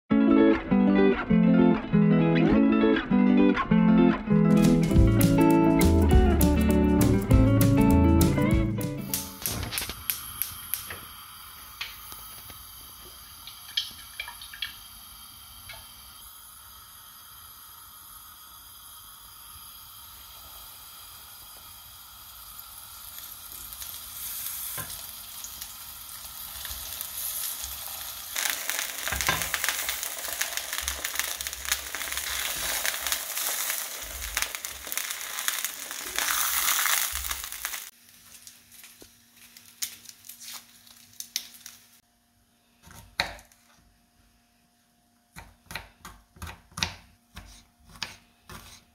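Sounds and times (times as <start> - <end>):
mushrooms sizzling in oil: 9.0 - 42.0.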